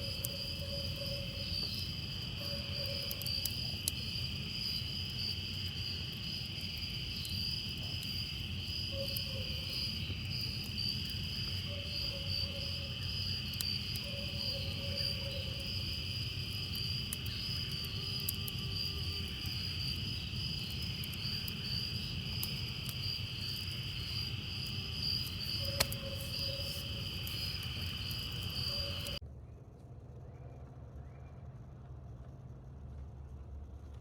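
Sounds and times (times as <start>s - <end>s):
insects trilling: 0.0s - 29.2s.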